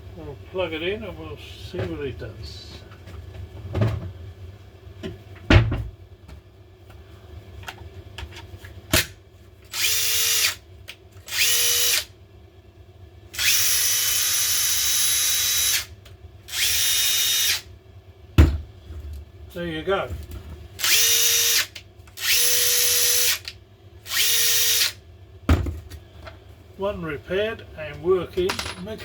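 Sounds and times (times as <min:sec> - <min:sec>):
impact driver motor whining: 0:11.3 - 0:12.1, 0:13.4 - 0:15.9, 0:16.5 - 0:17.6, 0:20.8 - 0:23.5, 0:24.1 - 0:25.0
tool being handled knocks: 0:28.4 - 0:29.0.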